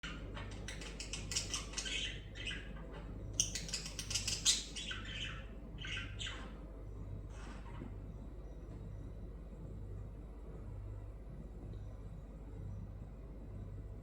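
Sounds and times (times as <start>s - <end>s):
budgerigars chattering: 0.0s - 2.8s, 3.4s - 6.6s
steady low hum: 0.0s - 14.0s.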